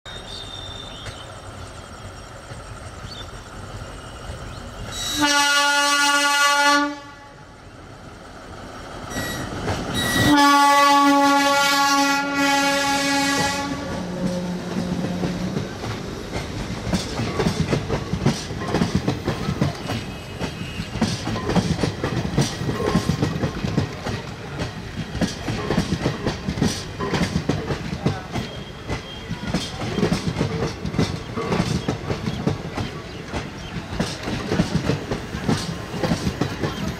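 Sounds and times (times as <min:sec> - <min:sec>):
train wheels clicking over rail joints: 0:00.2 - 0:05.3, 0:08.1 - 0:10.6, 0:11.2 - 0:36.9
train horn blasts: 0:04.9 - 0:07.5, 0:09.1 - 0:15.4.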